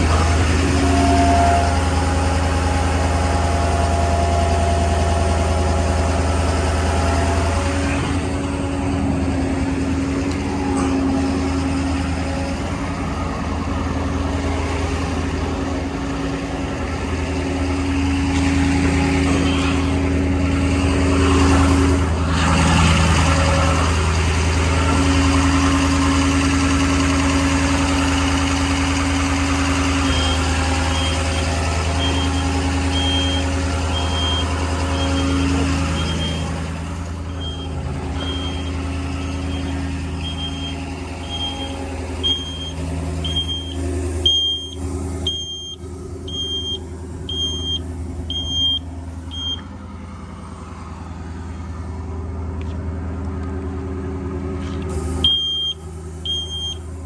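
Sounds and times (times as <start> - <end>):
diesel engine idling: 0.0 - 57.0
rapid high beeps: 55.2 - 56.8.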